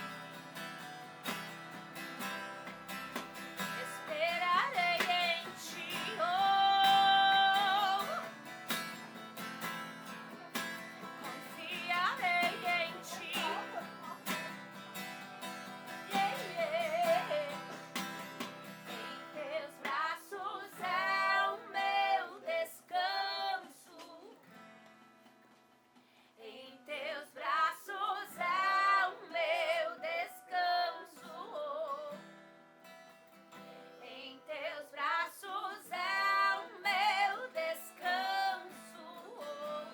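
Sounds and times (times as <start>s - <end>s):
strummed acoustic guitar: 0.0s - 39.9s
woman singing: 3.6s - 8.4s, 11.2s - 14.4s, 15.9s - 17.8s, 18.9s - 24.4s, 26.4s - 32.2s, 34.0s - 39.9s.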